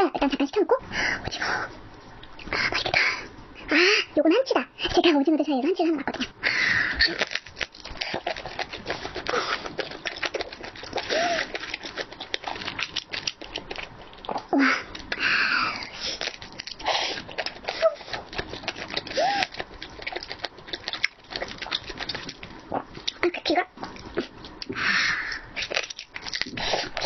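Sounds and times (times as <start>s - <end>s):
person biting and chewing: 7.0s - 15.2s, 15.8s - 23.2s, 23.8s - 27.0s.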